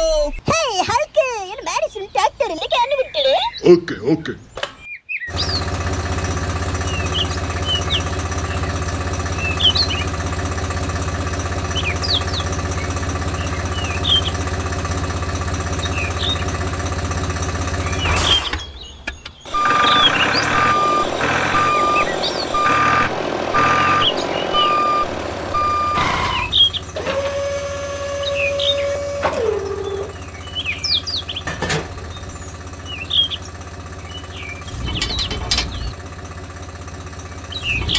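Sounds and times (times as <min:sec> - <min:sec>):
engine noise: 0:00.0 - 0:00.4, 0:04.5 - 0:37.9
birds chirping: 0:00.0 - 0:37.9
steady motor hum: 0:19.4 - 0:37.9
reversing alarm beeping: 0:19.5 - 0:30.2.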